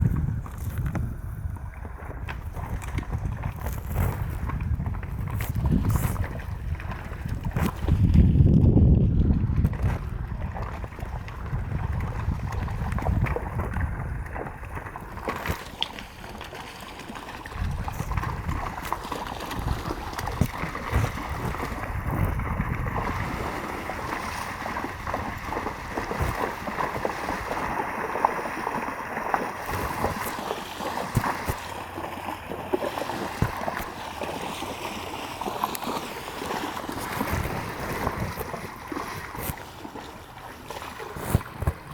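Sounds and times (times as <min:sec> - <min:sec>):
horses splashing in water: 0:00.0 - 0:41.9
wind buffeting microphone: 0:00.0 - 0:41.9
river water flowing: 0:10.6 - 0:41.9.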